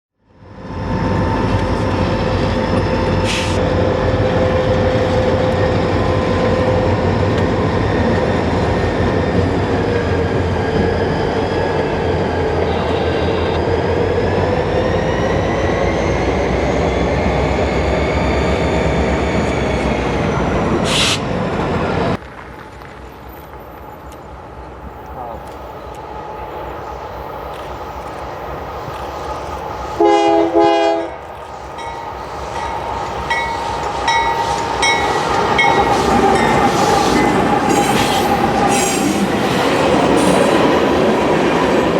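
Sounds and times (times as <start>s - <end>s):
train wheels rumbling on rail: 0.3s - 41.9s.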